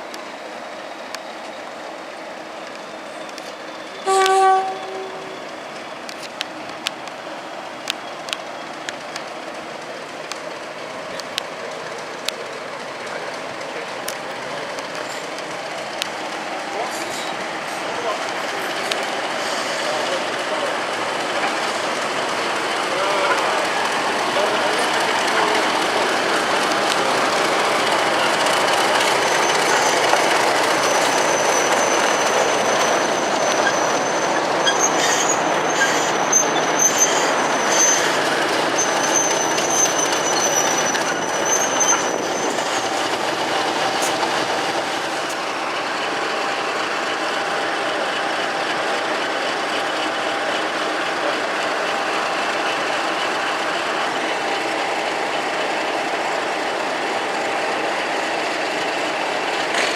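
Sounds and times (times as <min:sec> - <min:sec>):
train running rumble: 0:00.0 - 0:59.9
train wheels squealing: 0:02.7 - 0:06.2, 0:22.9 - 0:44.2.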